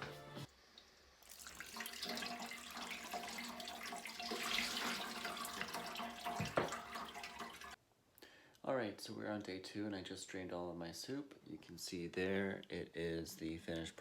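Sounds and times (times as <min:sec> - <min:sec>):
liquid running into sink: 0:01.2 - 0:07.8
knock: 0:06.4 - 0:06.8.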